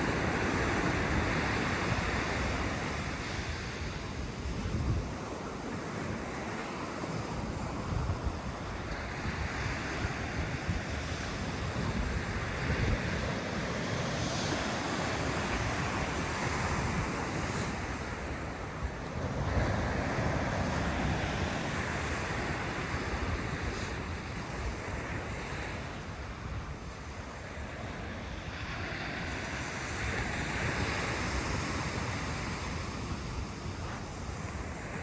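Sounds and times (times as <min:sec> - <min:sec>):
ocean surf roaring: 0:00.0 - 0:35.0
wind buffeting microphone: 0:00.0 - 0:35.0.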